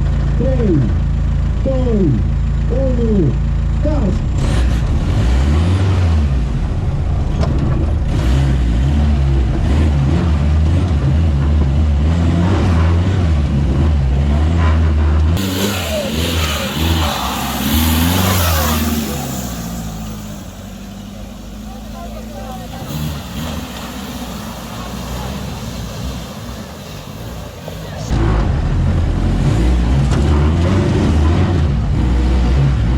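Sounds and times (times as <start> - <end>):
engine revving hard: 3.8 - 32.9
loud hiss: 22.8 - 28.1.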